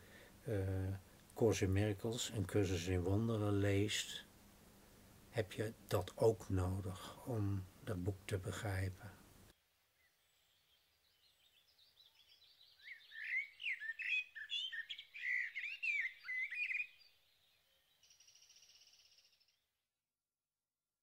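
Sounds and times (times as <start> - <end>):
songbird chirping: 9.7 - 19.7
buzzy bird trill: 11.6 - 19.6.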